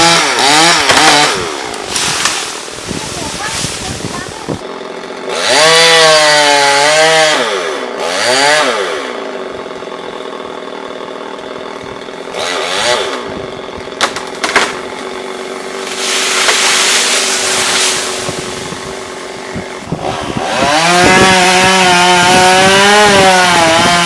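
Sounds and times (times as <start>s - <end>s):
chainsaw engine revving: 0.0s - 24.0s.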